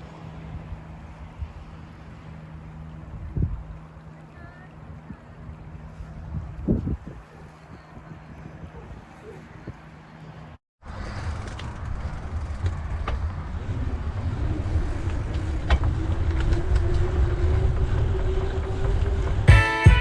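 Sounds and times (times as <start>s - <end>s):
bike rolling on pavement: 0.0s - 19.5s
wind buffeting microphone: 0.0s - 19.5s
faint rising hum: 8.6s - 20.0s
guitar music: 19.5s - 20.0s.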